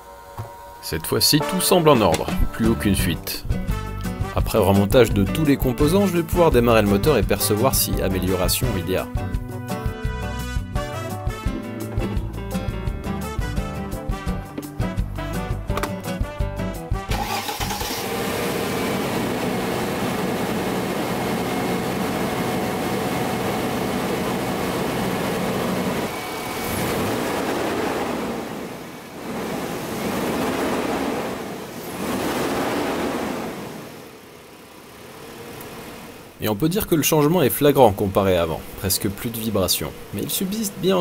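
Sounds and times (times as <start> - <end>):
car engine revving: 17.1 - 36.4.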